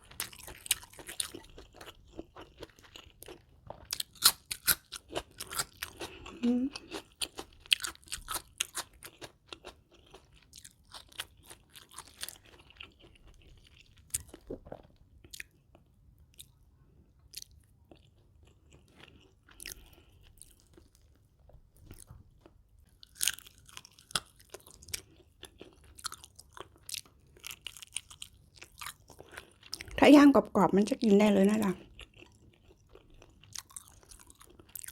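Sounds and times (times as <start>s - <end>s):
crunchy bites: 0.0s - 15.5s
wet chewing: 0.0s - 16.6s, 31.8s - 34.9s.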